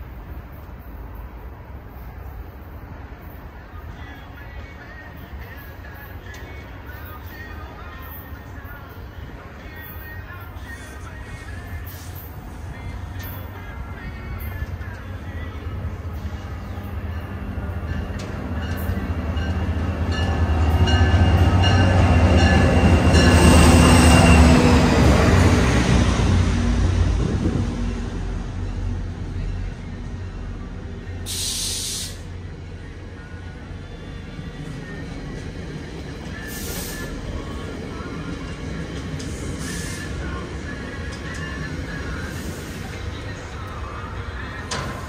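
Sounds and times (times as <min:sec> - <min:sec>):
diesel locomotive engine rumble: 0:00.0 - 0:45.0
train bell ringing: 0:16.2 - 0:25.0
air hissing: 0:31.2 - 0:32.3, 0:36.4 - 0:37.2.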